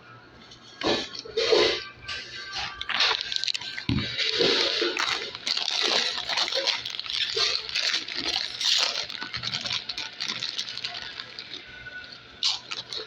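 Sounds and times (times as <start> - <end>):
chewing sandwich crunching: 2.5 - 13.0
rustling: 3.1 - 13.0.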